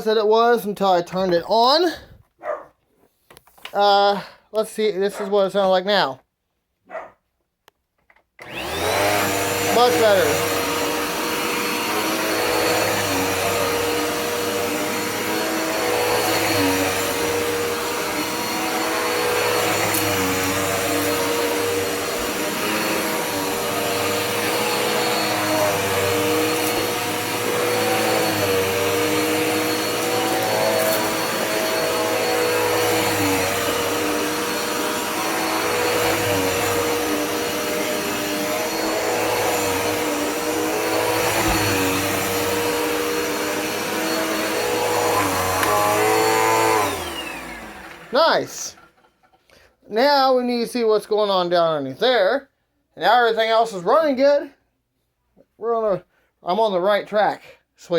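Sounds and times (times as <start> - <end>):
upright vacuum cleaner running: 8.4 - 49.0.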